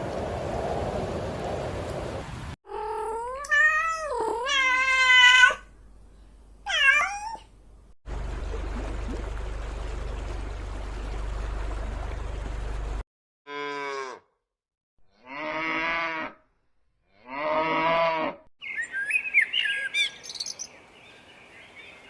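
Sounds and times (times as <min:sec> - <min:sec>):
cat meowing: 0:02.7 - 0:05.6, 0:06.7 - 0:07.5
steady low hum: 0:07.6 - 0:13.0.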